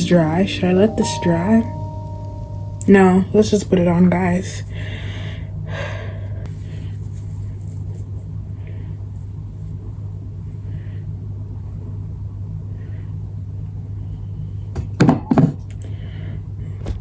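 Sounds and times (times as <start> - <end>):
faint soft rustles: 6.5 - 9.8.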